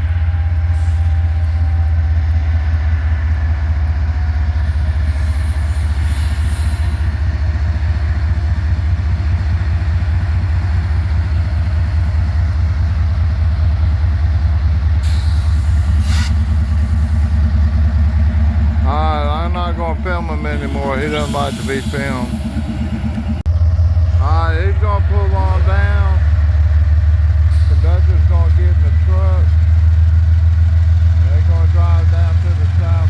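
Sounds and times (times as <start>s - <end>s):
diesel locomotive engine rumbling: 0.0s - 33.0s
short hisses: 15.0s - 16.8s.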